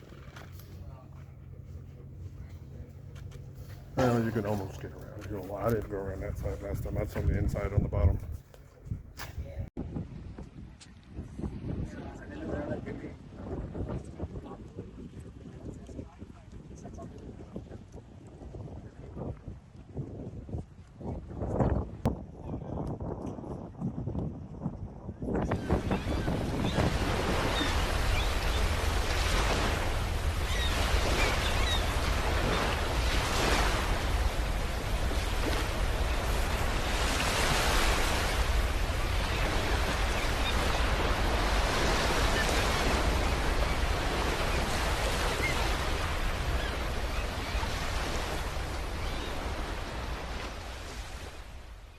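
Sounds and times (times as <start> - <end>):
waves washing in and out: 0.0 - 8.2, 25.5 - 51.9
wind rumble on microphone: 0.0 - 51.9.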